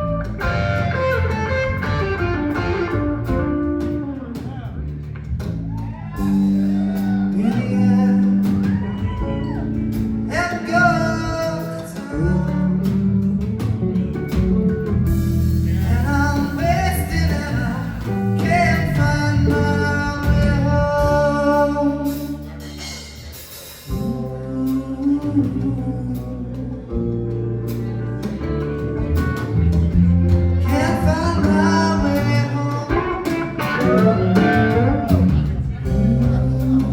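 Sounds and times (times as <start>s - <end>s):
live blues rock band: 0.0s - 36.9s
person singing: 6.2s - 13.6s, 15.6s - 29.5s, 30.6s - 36.9s.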